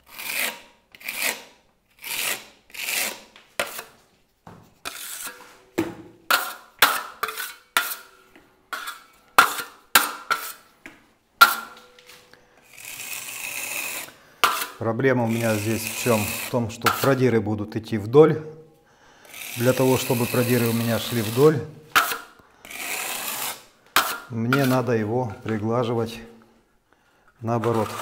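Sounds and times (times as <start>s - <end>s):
trowel scraping plaster: 0.0s - 4.1s, 4.7s - 5.7s, 6.3s - 10.8s, 11.4s - 12.1s, 12.7s - 17.3s, 19.3s - 25.7s, 27.4s - 28.0s.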